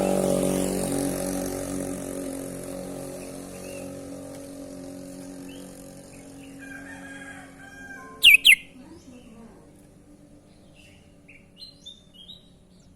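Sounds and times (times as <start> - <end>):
bird whistled notes: 8.2 - 8.7
bird chirps: 8.2 - 8.8.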